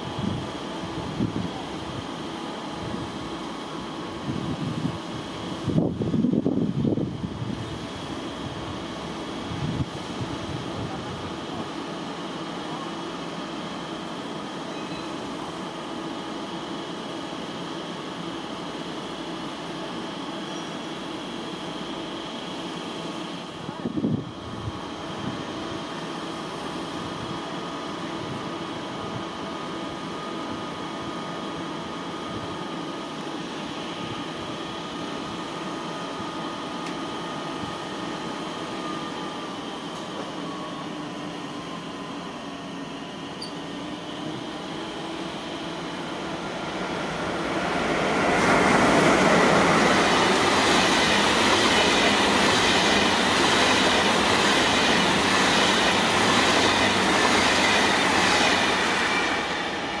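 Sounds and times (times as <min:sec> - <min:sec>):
train wheels rolling on rails: 0:00.0 - 1:00.0
train whining tones: 0:33.5 - 1:00.0
rail clatter: 0:46.5 - 1:00.0.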